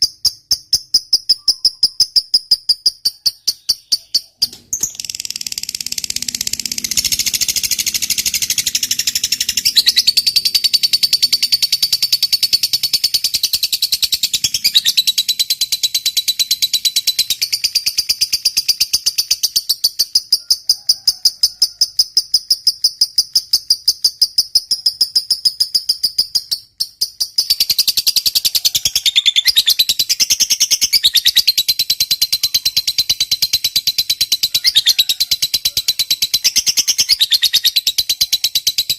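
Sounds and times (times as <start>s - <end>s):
lovebird chattering trill: 0.0s - 38.9s.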